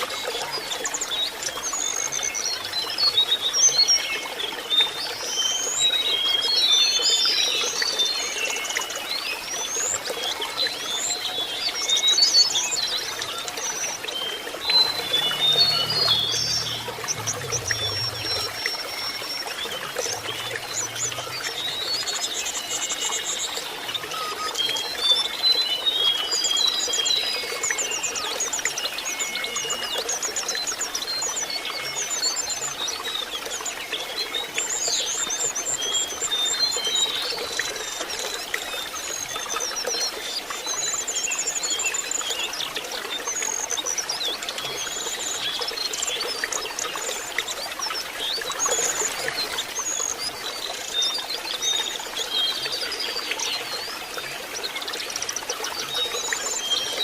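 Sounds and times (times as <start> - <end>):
trickling water: 0.0 - 57.0
bird chirping and trilling: 13.8 - 23.1.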